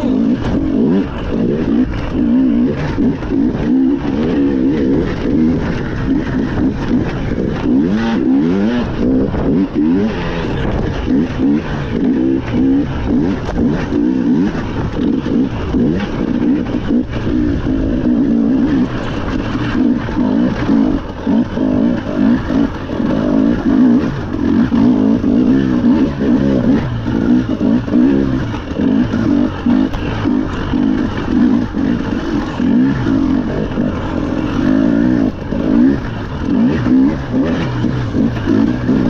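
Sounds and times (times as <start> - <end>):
rally car engine revving: 0.0 - 39.0.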